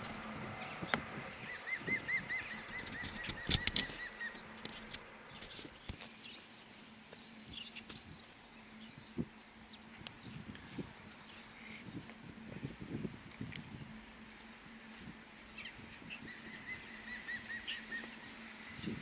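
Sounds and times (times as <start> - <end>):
birds calling and singing: 0.0 - 19.0.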